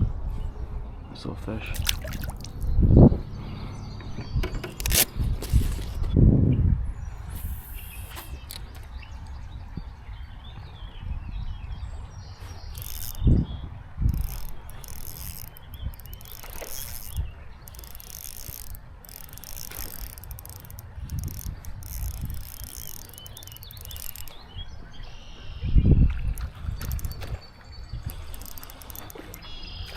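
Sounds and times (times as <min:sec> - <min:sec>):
fishing reel ratcheting click: 0:04.7 - 0:05.1, 0:12.7 - 0:13.2, 0:14.0 - 0:24.4, 0:26.4 - 0:27.2, 0:28.1 - 0:29.8.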